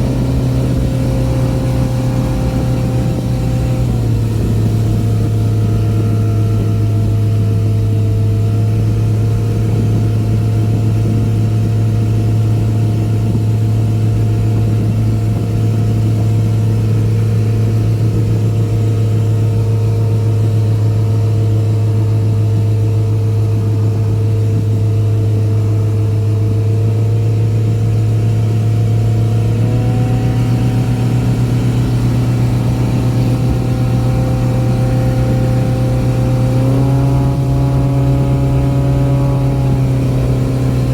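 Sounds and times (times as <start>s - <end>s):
boat engine at high revs: 0.0s - 40.9s.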